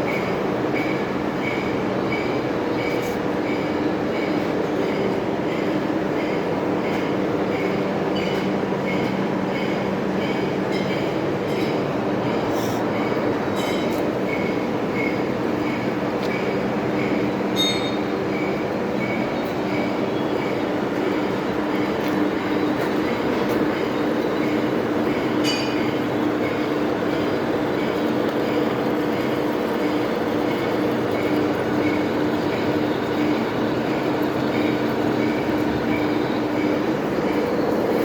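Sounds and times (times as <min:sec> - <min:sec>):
metal lathe running: 0:19.6 - 0:38.0.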